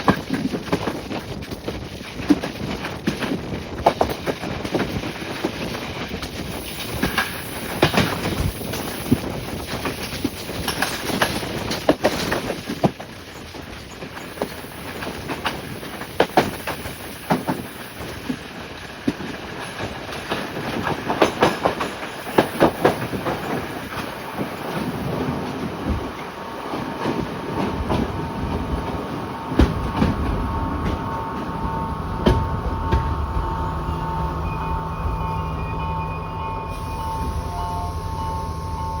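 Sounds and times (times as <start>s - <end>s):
wheels clattering over rails: 0.0s - 37.5s
diesel train rumble: 0.0s - 39.0s
steady tone: 29.8s - 39.0s.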